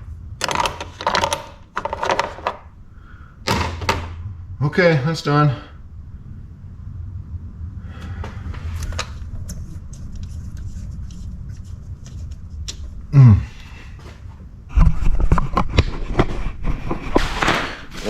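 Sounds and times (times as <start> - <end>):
steady low hum: 0.0 - 18.0
clatter of knocks and rattles: 0.4 - 2.7.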